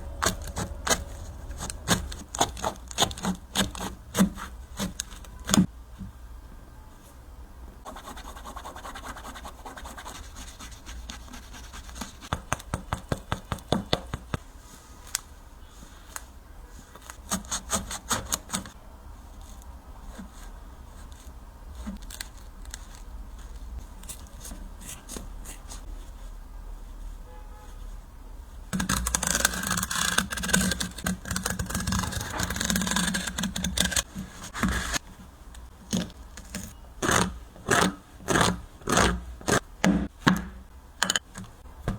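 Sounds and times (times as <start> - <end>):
scraping and cutting a shoe: 0.0 - 5.7, 7.9 - 14.4, 16.9 - 18.8, 28.8 - 41.9.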